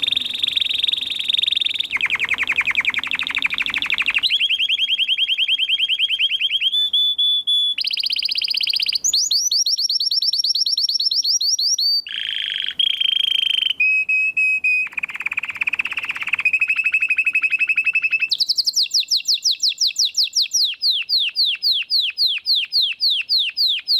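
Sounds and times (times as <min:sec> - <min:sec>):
canary singing trills: 0:00.0 - 0:23.9.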